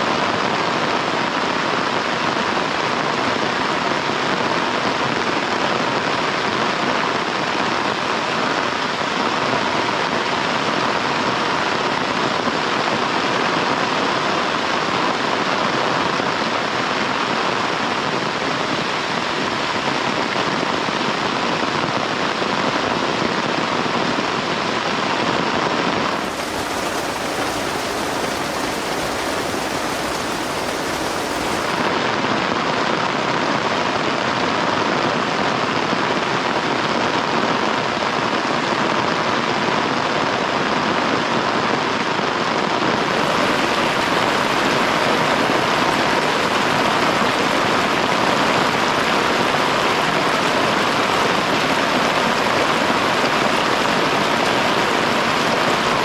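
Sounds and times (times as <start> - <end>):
heavy rain falling: 25.9 - 32.0, 43.0 - 56.0.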